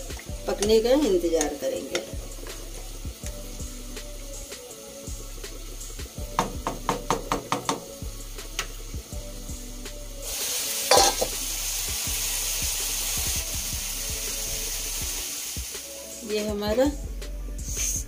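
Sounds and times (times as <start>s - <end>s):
curry sizzling: 0.0s - 17.0s
taps on a pan: 6.3s - 8.0s
knock on a pan: 6.4s - 7.9s.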